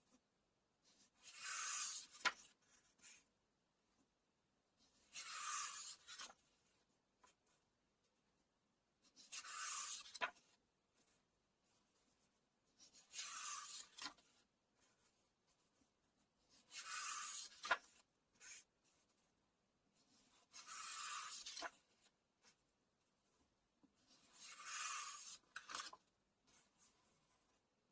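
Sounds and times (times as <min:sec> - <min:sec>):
book pages turning: 0:01.2 - 0:03.0, 0:05.0 - 0:06.4, 0:09.2 - 0:10.6, 0:12.8 - 0:15.2, 0:16.5 - 0:18.7, 0:20.1 - 0:22.1, 0:24.0 - 0:27.5.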